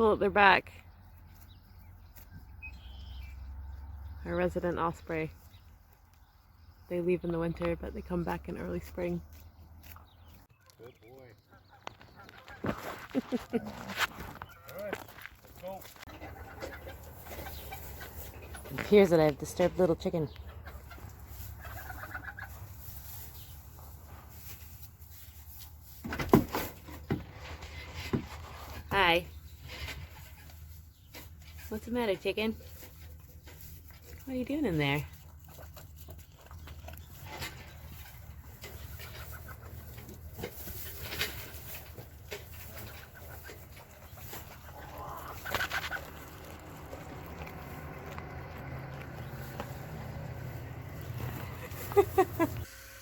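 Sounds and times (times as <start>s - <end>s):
chicken clucking loudly: 11.5s - 13.5s, 16.1s - 18.7s, 20.2s - 22.8s, 38.0s - 40.2s, 42.6s - 47.2s.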